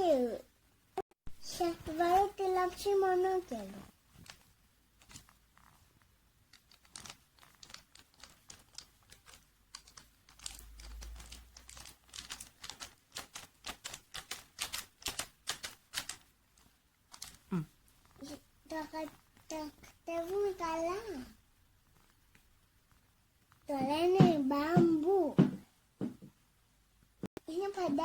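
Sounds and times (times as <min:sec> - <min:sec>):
small plastic pieces clicking: 0:06.5 - 0:17.4.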